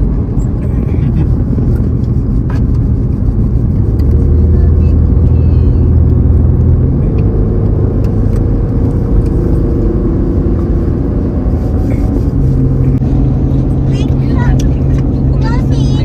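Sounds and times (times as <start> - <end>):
car cabin engine and road drone: 0.0 - 16.0.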